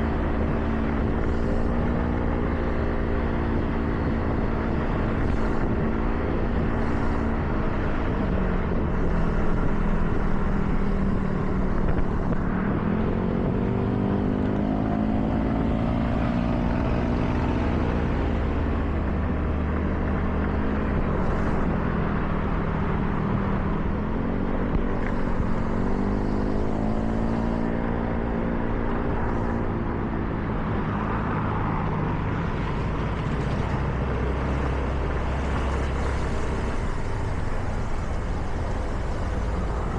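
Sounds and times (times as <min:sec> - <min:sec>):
car engine accelerating: 0:00.0 - 0:39.9
tyres hissing on wet road: 0:01.2 - 0:01.7, 0:06.8 - 0:07.3, 0:32.5 - 0:39.9.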